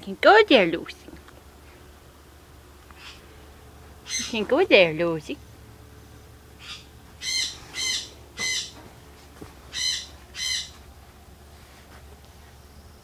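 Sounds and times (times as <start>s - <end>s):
high-pitched bird calls: 3.0s - 3.3s, 4.0s - 4.5s, 6.6s - 8.8s, 9.7s - 10.8s.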